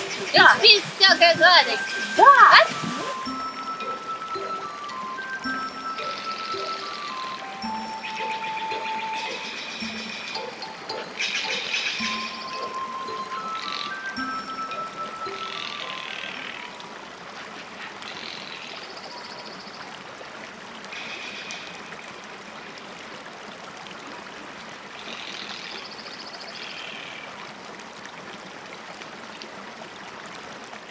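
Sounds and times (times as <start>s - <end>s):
short high trills: 0.0s - 16.8s
running water stream: 0.0s - 30.9s.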